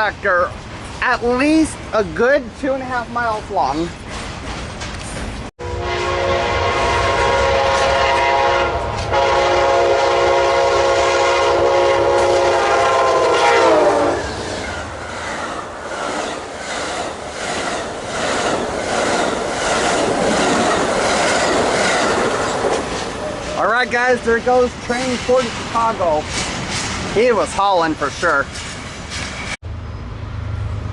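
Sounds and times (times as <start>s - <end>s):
diesel locomotive passing: 0.0s - 30.9s
train horn blasts: 5.6s - 14.4s
train wheels clacking on rails: 14.6s - 29.6s.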